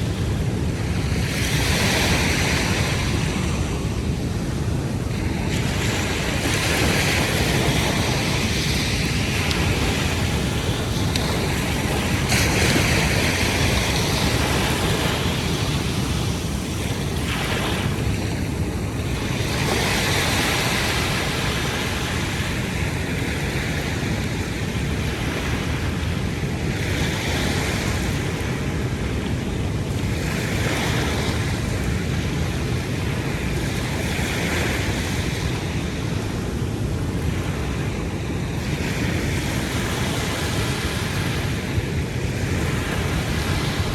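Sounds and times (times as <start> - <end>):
waves washing onto shore: 0.0 - 43.9
wind rumble on microphone: 0.0 - 43.9.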